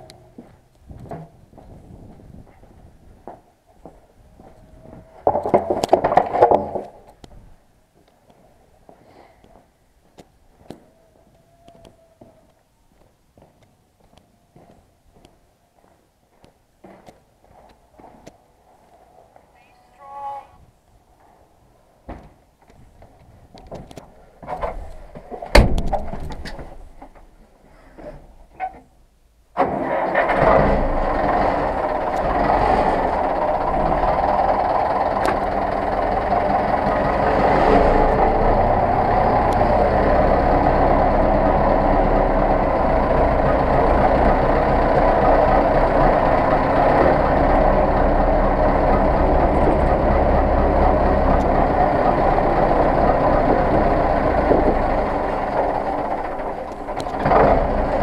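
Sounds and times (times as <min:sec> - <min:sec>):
knocks: 0:24.5 - 0:27.2
loud bang: 0:25.5 - 0:26.3
tractor diesel engine running: 0:29.6 - 0:58.0.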